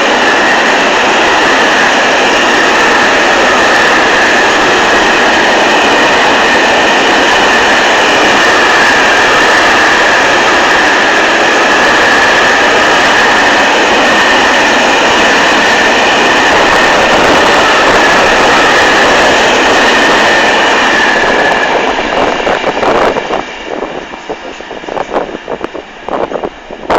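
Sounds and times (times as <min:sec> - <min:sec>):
freight train rumbling past: 0:00.0 - 0:26.9
high-pitched train squeal: 0:00.0 - 0:26.9
wind gusting on microphone: 0:00.0 - 0:26.9.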